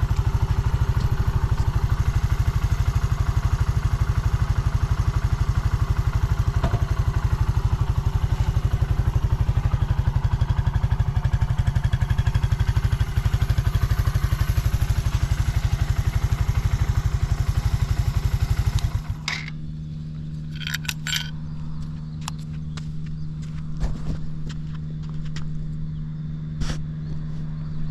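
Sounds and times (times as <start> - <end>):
motorcycle engine idling: 0.0 - 23.6
steady low hum: 5.9 - 27.9
light clicks and clinks: 20.5 - 21.4.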